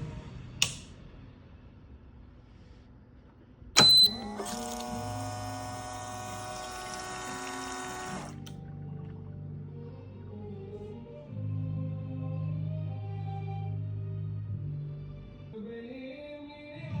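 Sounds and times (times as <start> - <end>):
sharp loud click: 0.6 - 0.9
coffee machine pump running: 3.8 - 8.6.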